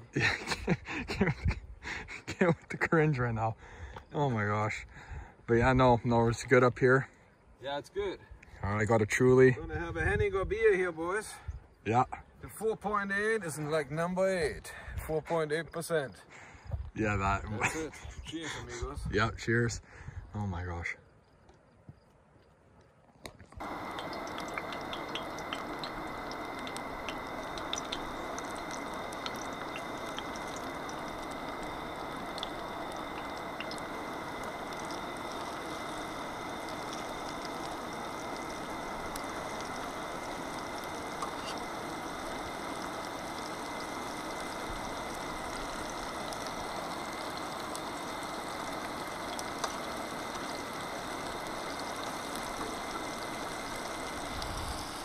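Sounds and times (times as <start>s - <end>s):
food sizzling in oil: 23.6s - 55.0s
thin steady high tone: 23.6s - 55.0s.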